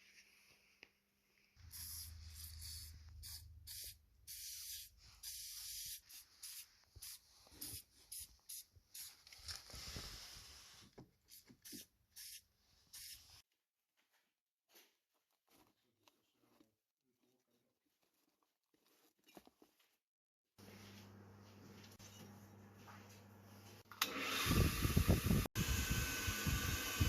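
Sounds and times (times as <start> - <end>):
short bursts of hiss: 1.6 - 10.8.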